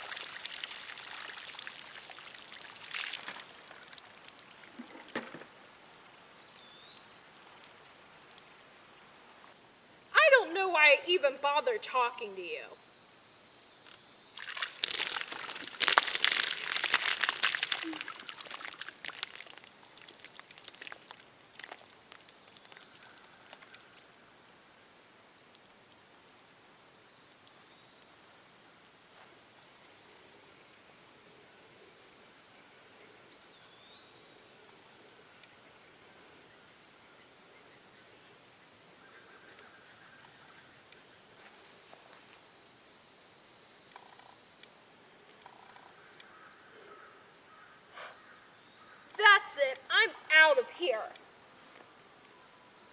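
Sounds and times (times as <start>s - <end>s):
slime splattering: 0.0s - 3.6s, 14.4s - 21.8s
crickets chirping: 0.0s - 52.9s
faint high insect hum: 0.0s - 52.9s.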